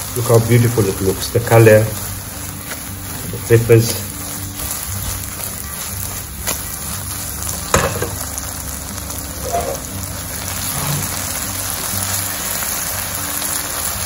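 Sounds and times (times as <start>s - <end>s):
sauce sizzling in a hot pan: 0.0s - 14.0s.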